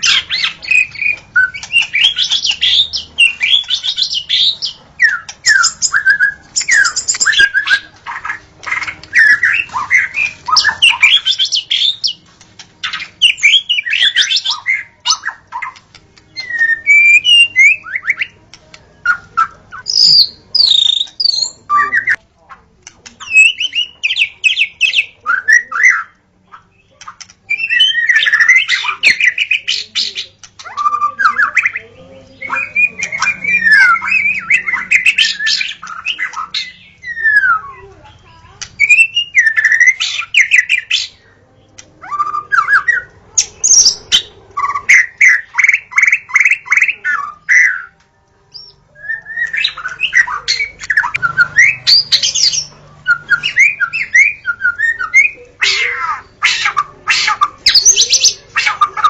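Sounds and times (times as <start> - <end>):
bird singing whistled phrases: 0.0 - 12.2, 12.8 - 18.4, 19.0 - 22.2, 23.2 - 31.8, 32.4 - 37.9, 38.8 - 41.2, 42.0 - 59.0.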